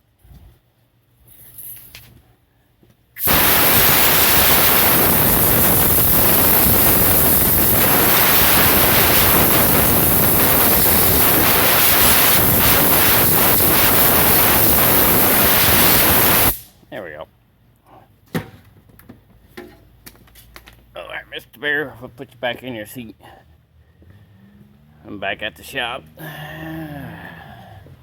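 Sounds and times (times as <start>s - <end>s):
air blowgun hissing: 3.2s - 16.8s.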